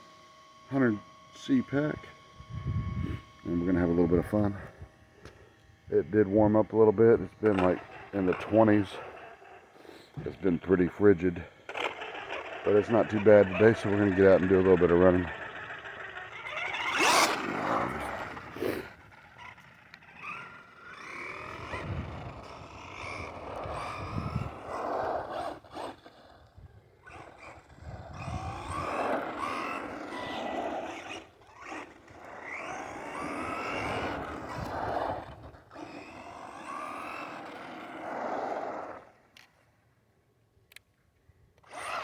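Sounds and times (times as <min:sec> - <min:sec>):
rc truck motor whine: 0:00.0 - 0:42.0.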